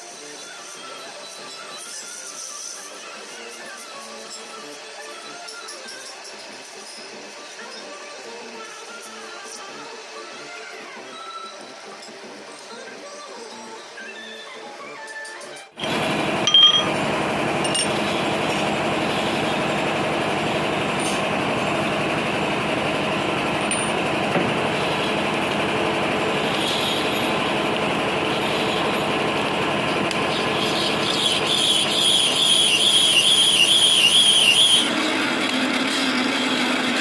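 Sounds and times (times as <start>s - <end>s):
machine tool running: 15.8s - 37.0s
wavering high-pitched squeal: 30.4s - 34.9s.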